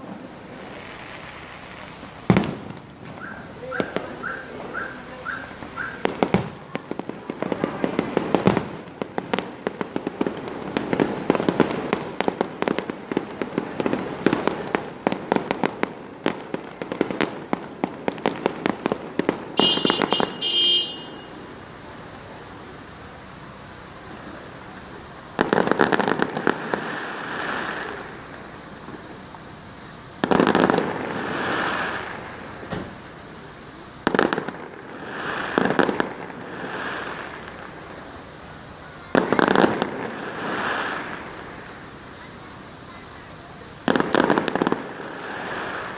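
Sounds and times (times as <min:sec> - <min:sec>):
firework whistle: 0:00.0 - 0:06.6, 0:18.3 - 0:22.9, 0:24.0 - 0:45.9
fireworks crackling pops: 0:00.0 - 0:45.9.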